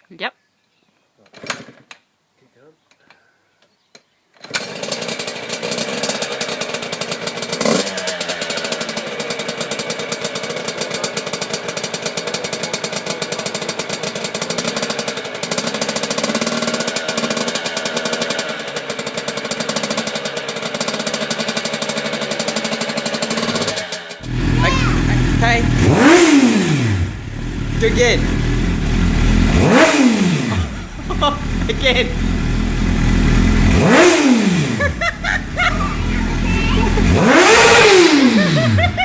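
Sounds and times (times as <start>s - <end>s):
motorcycle engine running: 4.6s - 39.0s.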